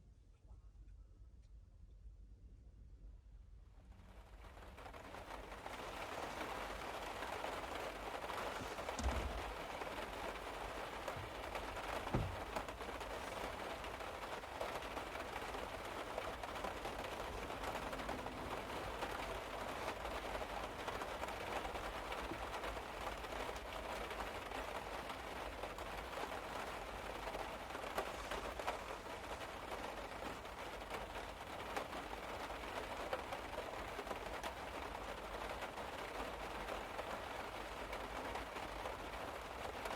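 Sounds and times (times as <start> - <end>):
rain on car roof: 3.8 - 39.9.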